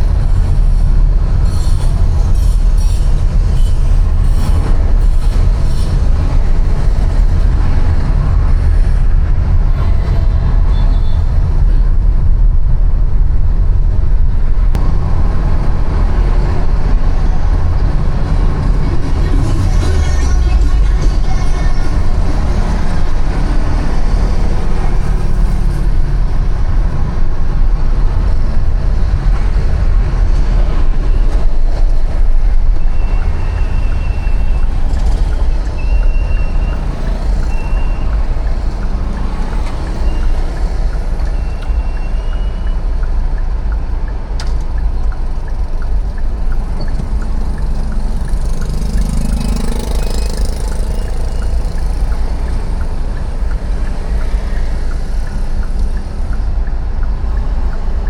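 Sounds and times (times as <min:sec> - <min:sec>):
motor vehicles passing: 0:00.0 - 0:41.4, 0:43.0 - 0:58.0
heavy low rumble: 0:00.0 - 0:42.0.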